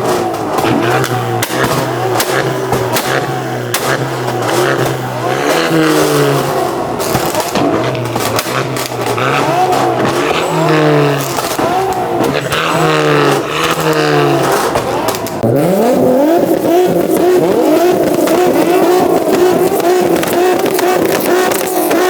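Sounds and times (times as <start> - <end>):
car engine revving: 0.0 - 22.0
engine bouncing off rev limiter: 0.0 - 22.0.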